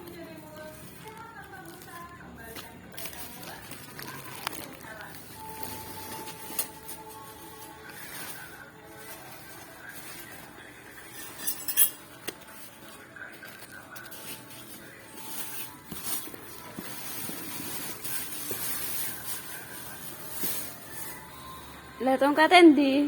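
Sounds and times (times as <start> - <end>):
rustling: 0.0 - 21.8
hard objects clinking and knocking: 10.0 - 12.9.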